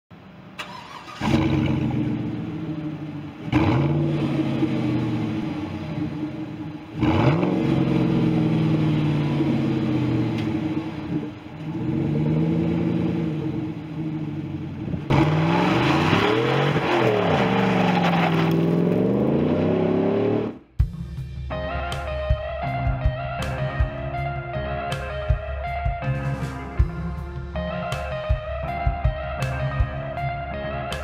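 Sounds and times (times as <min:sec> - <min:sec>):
car engine revving: 0:00.6 - 0:20.7.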